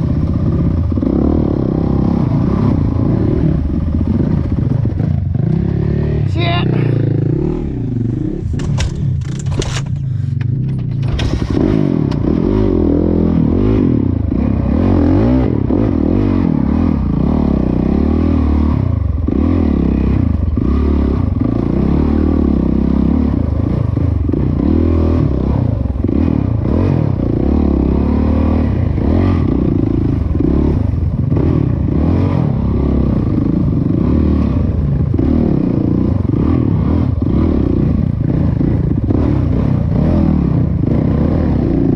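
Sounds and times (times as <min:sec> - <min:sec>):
dirt bike engine revving: 0:00.0 - 0:10.2, 0:11.1 - 0:41.9.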